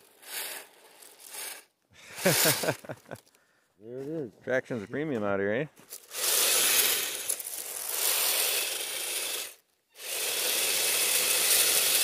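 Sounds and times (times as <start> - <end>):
rc vehicle clattering on snow: 0.0 - 3.2, 5.8 - 8.5.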